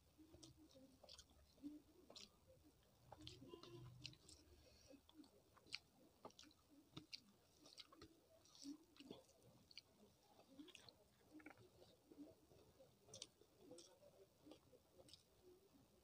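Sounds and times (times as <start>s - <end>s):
person chewing food: 0.0s - 16.0s
mouth clicks and smacks: 5.0s - 12.4s, 13.0s - 15.3s.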